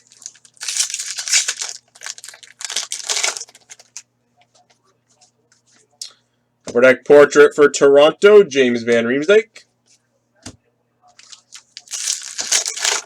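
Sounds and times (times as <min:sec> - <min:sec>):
wrapper rustling: 0:00.0 - 0:04.0, 0:11.2 - 0:13.0
wrapper tearing and crinkling: 0:00.0 - 0:04.0, 0:11.2 - 0:13.0.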